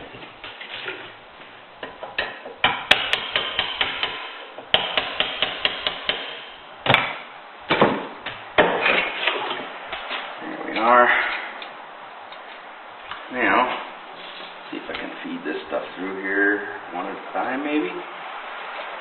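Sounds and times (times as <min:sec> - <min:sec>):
hammer tapping metal punch: 0:01.8 - 0:07.0.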